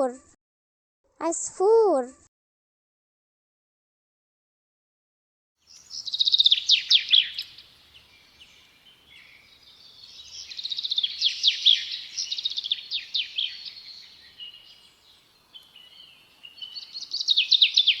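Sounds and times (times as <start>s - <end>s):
small songbird singing: 5.6s - 18.0s.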